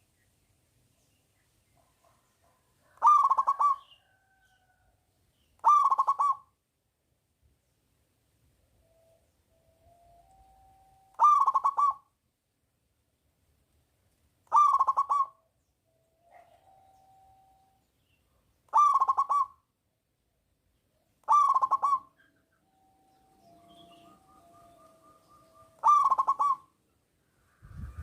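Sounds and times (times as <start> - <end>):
dove cooing: 1.8 - 4.4, 5.6 - 6.4, 11.1 - 12.0, 14.5 - 15.4, 16.3 - 17.5, 18.7 - 19.6, 21.2 - 26.8.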